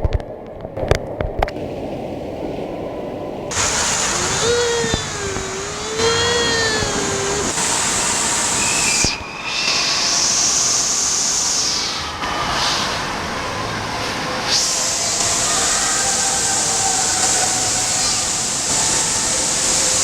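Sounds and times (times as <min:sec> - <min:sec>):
rushing water: 0:01.5 - 0:20.0
echoing hiss: 0:01.6 - 0:20.0
long wavering cry: 0:03.5 - 0:09.8, 0:14.5 - 0:19.8.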